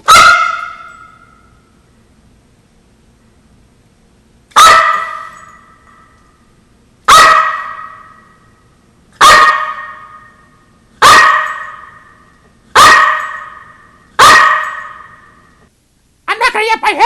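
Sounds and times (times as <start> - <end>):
dog barking with echo: 0.0 - 1.4, 4.6 - 5.6, 7.1 - 8.4, 9.2 - 10.4, 11.0 - 12.1, 12.8 - 15.2.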